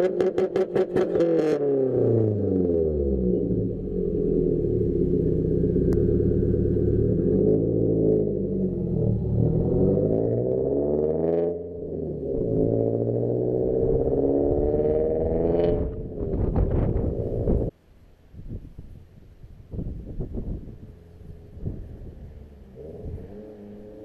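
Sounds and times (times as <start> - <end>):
car engine revving through gears: 0.0 - 4.6, 5.2 - 17.7, 22.6 - 24.0.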